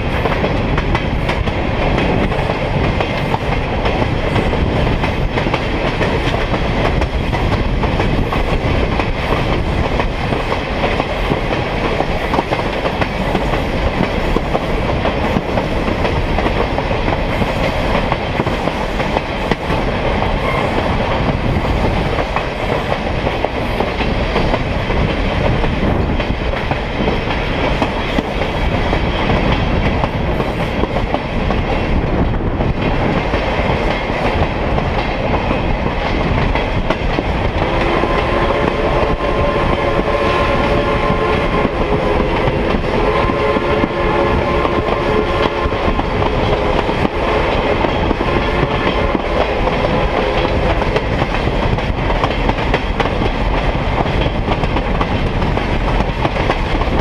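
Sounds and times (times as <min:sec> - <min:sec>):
train wheels on rails: 0:00.0 - 0:57.0
train horn: 0:20.4 - 0:20.8, 0:37.6 - 0:50.5.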